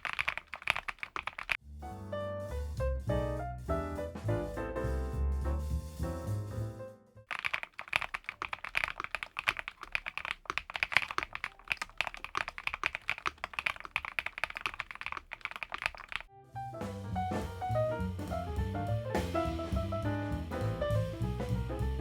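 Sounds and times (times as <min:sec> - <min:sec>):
fast typing on mechanical keyboard: 0:00.0 - 0:01.6, 0:07.3 - 0:16.3.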